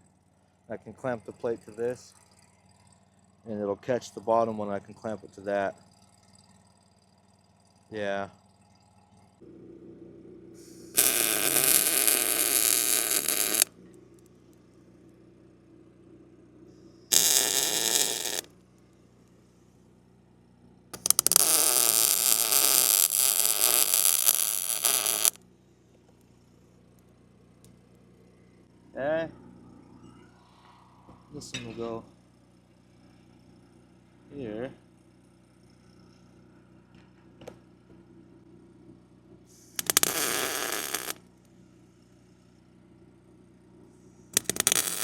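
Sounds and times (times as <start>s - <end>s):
welding arc crackling: 10.6s - 13.7s, 17.1s - 18.5s, 21.0s - 25.4s, 39.7s - 41.2s, 44.4s - 45.0s.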